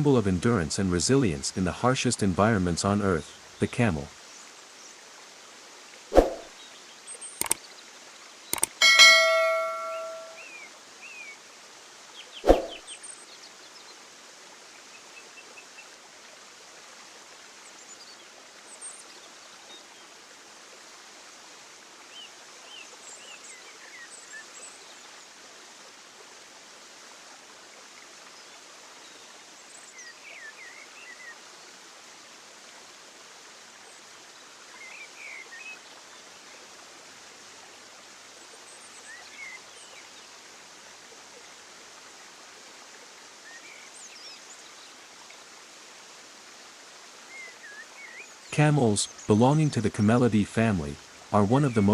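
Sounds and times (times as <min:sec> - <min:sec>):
bird chirps: 0:08.6 - 0:10.4, 0:12.4 - 0:12.8
bell strike ringing: 0:08.8 - 0:10.4.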